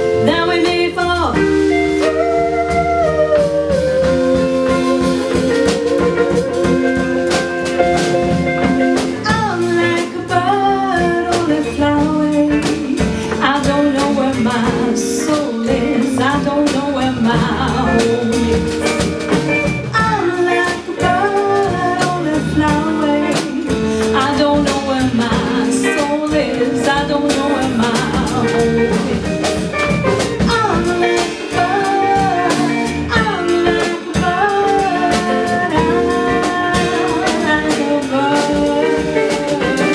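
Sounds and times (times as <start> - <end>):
live pop band music: 0.0 - 39.9.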